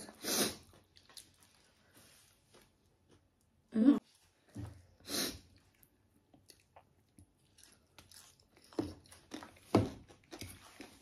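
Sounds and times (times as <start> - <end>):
crunchy chewing: 6.4 - 11.0.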